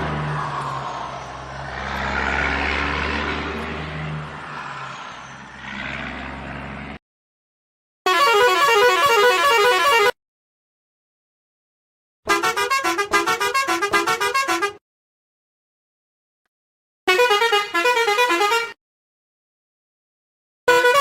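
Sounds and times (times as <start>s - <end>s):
musical horn playing tune: 8.1s - 10.2s, 12.3s - 14.8s, 17.1s - 18.8s, 20.7s - 21.0s.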